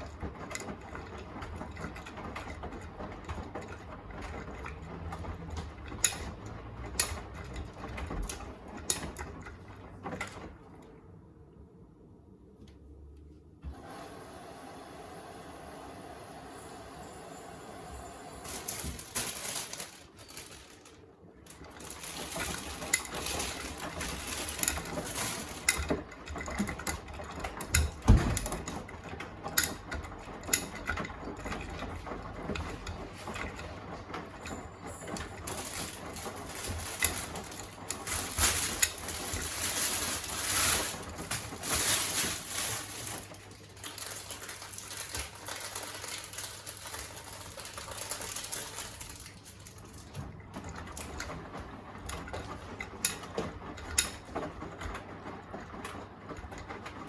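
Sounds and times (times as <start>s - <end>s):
washing machine clicks and knocks: 0.0s - 10.9s, 21.5s - 39.6s, 50.0s - 57.0s
laundry tumbling and sloshing: 18.3s - 57.0s
washing machine thump: 27.9s - 28.7s.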